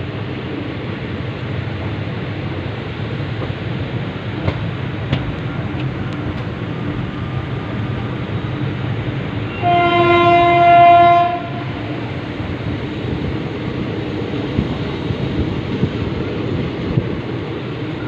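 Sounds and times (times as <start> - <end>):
train running rumble: 0.0 - 18.0
train horn: 9.4 - 12.1.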